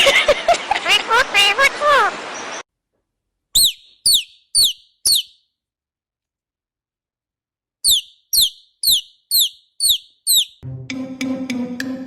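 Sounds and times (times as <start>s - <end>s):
parrot whistled chirps: 3.6s - 5.5s, 7.8s - 10.6s.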